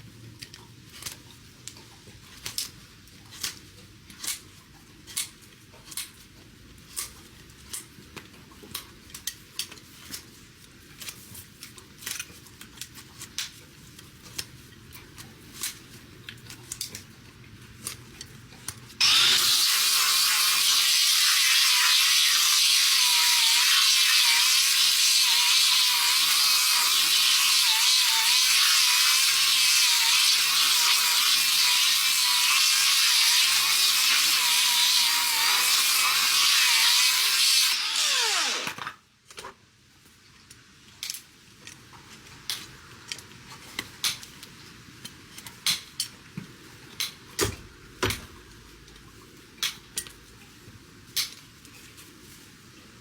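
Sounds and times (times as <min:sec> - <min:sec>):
motor winding down whine: 0:19.0 - 0:19.6, 0:37.6 - 0:38.9
electric power tool running: 0:19.0 - 0:39.0.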